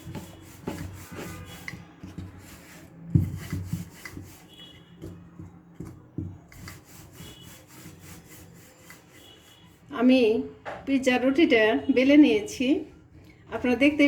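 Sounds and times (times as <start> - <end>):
rolling pin rubbing dough: 0.0 - 9.9.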